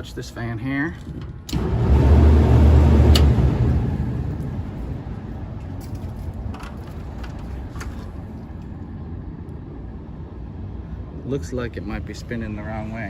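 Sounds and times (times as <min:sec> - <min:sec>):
fan motor running: 0:01.5 - 0:05.2.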